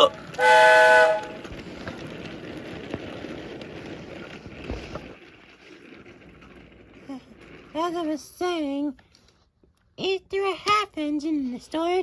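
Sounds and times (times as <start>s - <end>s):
train running noise: 0.0s - 5.2s
train whistle blast: 0.4s - 1.4s.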